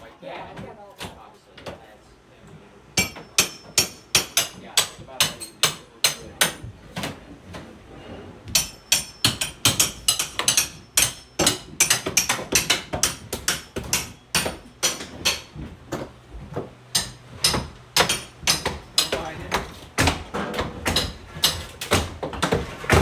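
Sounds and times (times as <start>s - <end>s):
hammer and crowbar knocks: 3.0s - 6.6s, 8.5s - 16.1s, 17.0s - 23.0s.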